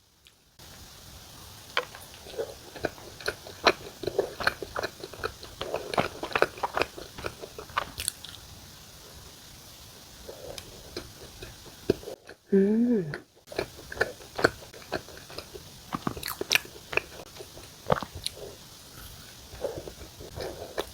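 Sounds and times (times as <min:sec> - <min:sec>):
close biting and chewing bread: 0:01.8 - 0:08.4, 0:10.2 - 0:12.5, 0:13.1 - 0:20.9.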